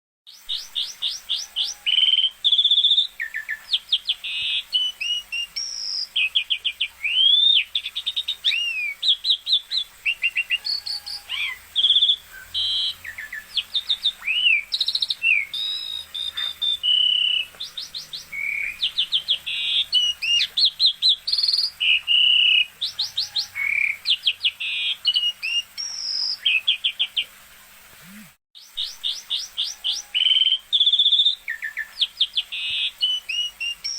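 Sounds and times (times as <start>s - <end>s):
starling singing whistles and trills: 0.3s - 27.2s, 28.0s - 33.9s.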